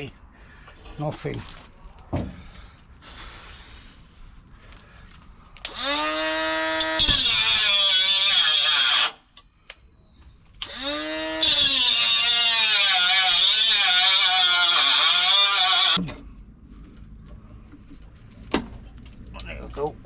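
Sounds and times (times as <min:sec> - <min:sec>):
angle grinder cutting sheet steel: 0:05.7 - 0:09.2, 0:10.6 - 0:16.0.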